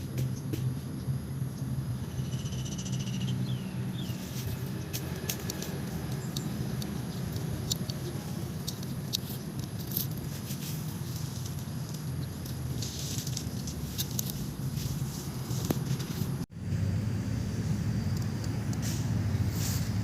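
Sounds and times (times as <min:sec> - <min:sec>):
bird chirping: 0:01.5 - 0:09.5.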